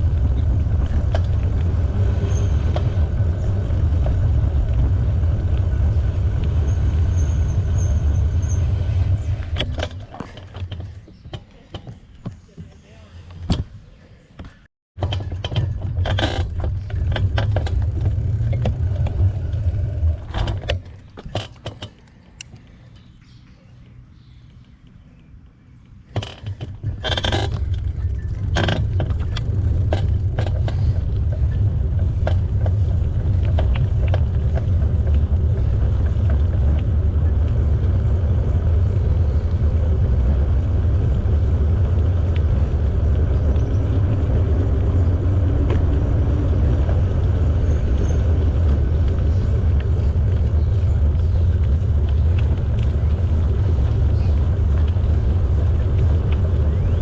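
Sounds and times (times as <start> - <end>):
bicycle tyre and wind rumble: 0.0 - 12.4, 14.4 - 57.0
handling clicks and knocks: 9.4 - 13.8, 14.4 - 23.1, 26.1 - 37.5.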